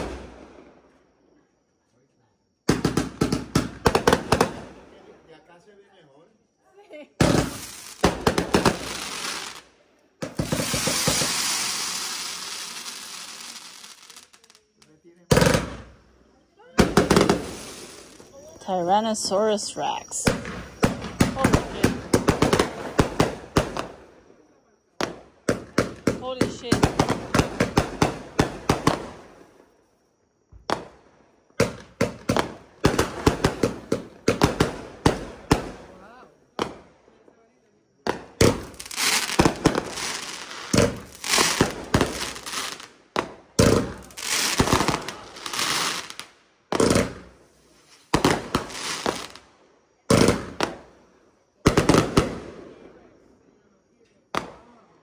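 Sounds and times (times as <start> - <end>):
fireworks bangs: 0.0 - 1.0, 2.6 - 5.2, 7.2 - 29.6, 30.5 - 37.3, 38.0 - 51.0, 51.6 - 53.1, 54.3 - 54.8
firework hissing: 7.2 - 16.0, 16.8 - 24.1, 38.4 - 43.0, 43.6 - 49.4.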